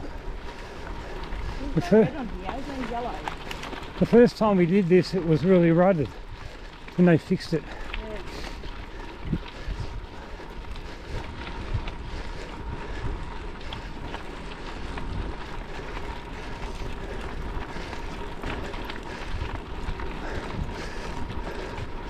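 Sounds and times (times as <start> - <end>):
bike tyres rolling on gravel: 0.0 - 22.0
wind buffeting the microphone: 0.0 - 22.0.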